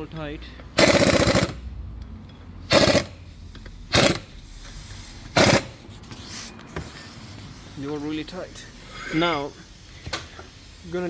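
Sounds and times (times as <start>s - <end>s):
impact wrench hammering: 0.8s - 1.6s, 2.6s - 4.4s, 5.3s - 5.8s.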